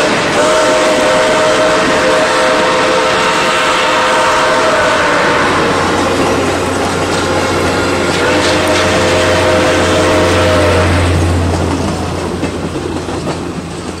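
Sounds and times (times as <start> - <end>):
steam locomotive chime whistle: 0.0 - 11.8
train wheels clattering: 0.0 - 14.0.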